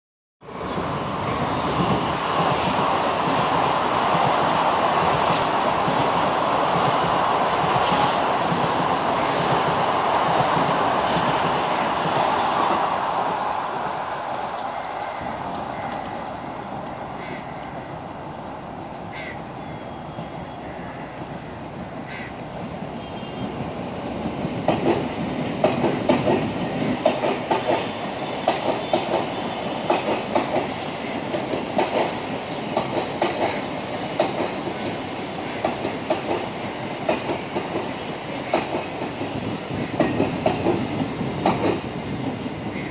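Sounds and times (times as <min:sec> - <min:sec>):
passing train rumble: 0:00.4 - 0:42.9
train wheels clattering over rail joints: 0:24.3 - 0:42.8.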